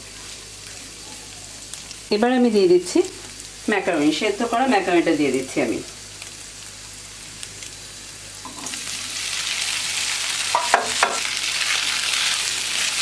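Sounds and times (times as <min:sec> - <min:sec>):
pasta sizzling in frying pan: 0:00.0 - 0:13.0
spatula knocking pan: 0:10.5 - 0:11.3.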